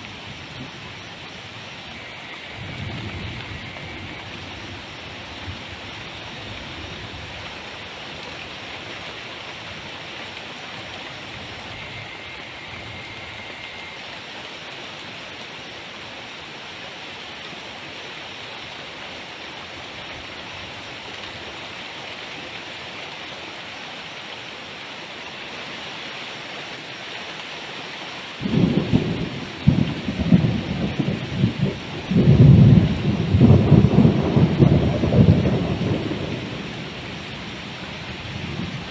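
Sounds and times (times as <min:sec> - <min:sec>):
heavy rain falling: 0:00.0 - 0:38.9
rolling thunder: 0:28.4 - 0:37.0.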